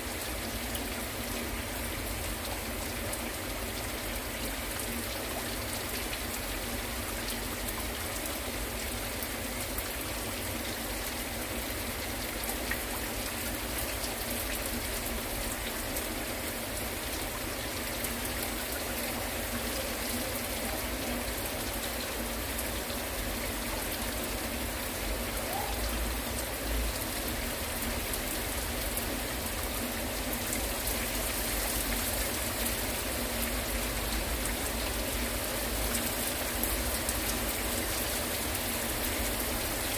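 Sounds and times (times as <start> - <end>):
heavy rain on hard surfaces: 0.0 - 39.9.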